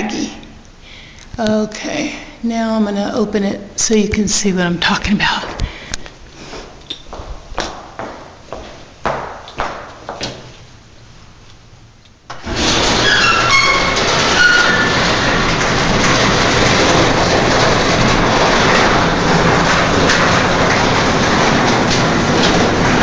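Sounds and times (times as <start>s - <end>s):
garage door squeals: 12.3s - 17.1s
garage door rumbling open: 12.3s - 23.0s.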